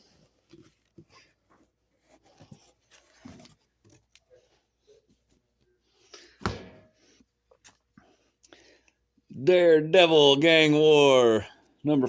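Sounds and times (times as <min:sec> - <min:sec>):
cardboard rustling and scraping: 0:00.0 - 0:05.5.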